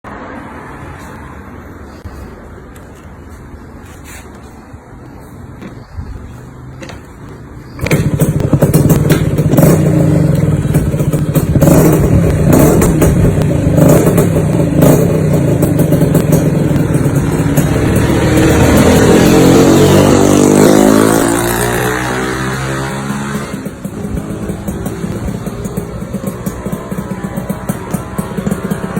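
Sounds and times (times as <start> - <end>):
motorcycle engine revving: 6.8 - 28.9.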